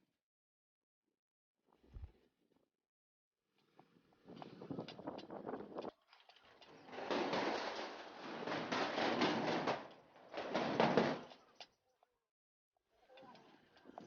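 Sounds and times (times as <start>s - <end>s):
bicycle rushing noise: 6.8s - 11.4s
bicycle rattling knocks: 6.9s - 11.5s.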